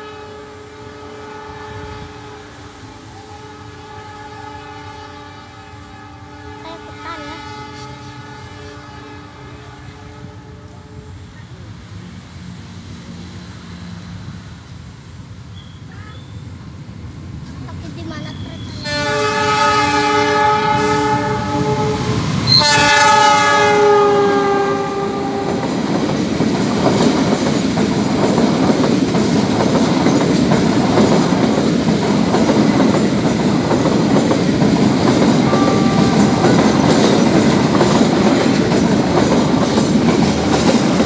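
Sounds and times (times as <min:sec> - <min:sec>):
train horn blasts: 0:00.0 - 0:11.4, 0:18.6 - 0:25.9, 0:35.0 - 0:38.9
train cars rumbling past: 0:00.0 - 0:41.0.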